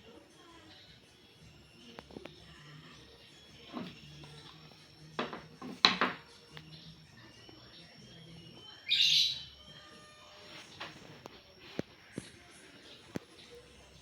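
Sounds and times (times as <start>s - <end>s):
bird chirping loudly: 8.7s - 9.7s.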